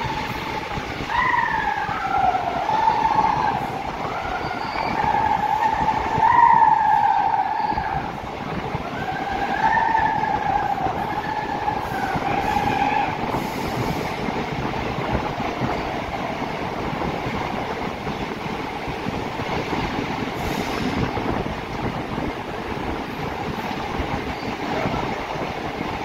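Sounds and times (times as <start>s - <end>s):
high wavering squeal: 0.0s - 8.0s
train running noise in tunnel: 0.0s - 26.0s.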